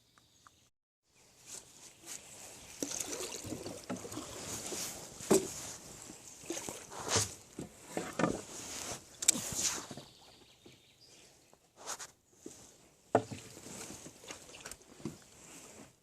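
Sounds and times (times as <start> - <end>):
water splashing and sloshing: 1.5 - 10.1, 12.5 - 16.0.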